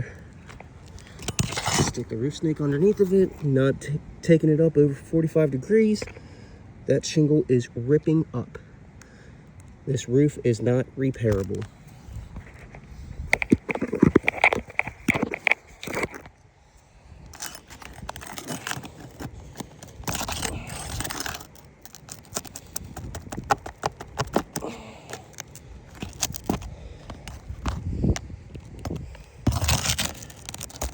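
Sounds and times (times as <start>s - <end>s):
shingles crackling: 0.0s - 3.4s, 11.0s - 30.9s
metal tool scraping shingles: 0.9s - 2.1s, 17.3s - 30.9s.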